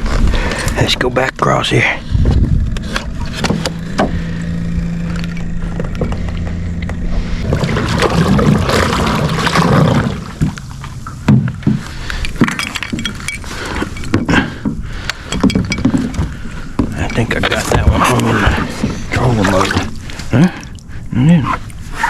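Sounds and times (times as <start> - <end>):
churning water: 0.0 - 22.0
electric boat motor humming: 2.0 - 22.0
knocks against boat: 11.2 - 12.6.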